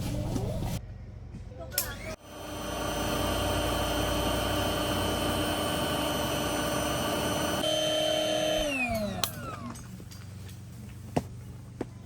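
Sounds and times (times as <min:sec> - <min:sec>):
small motor whining: 0:01.9 - 0:09.8.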